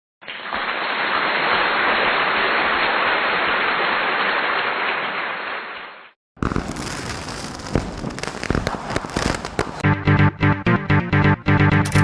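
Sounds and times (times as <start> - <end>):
bonfire crackling: 6.4 - 9.8.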